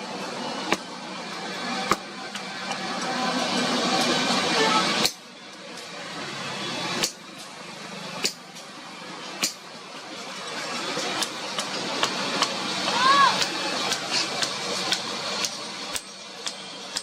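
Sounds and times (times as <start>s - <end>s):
street traffic hum: 0.0s - 17.0s
hammer striking iron on anvil: 5.0s - 5.2s, 7.0s - 7.2s, 8.2s - 8.5s, 9.4s - 9.7s, 15.9s - 17.0s.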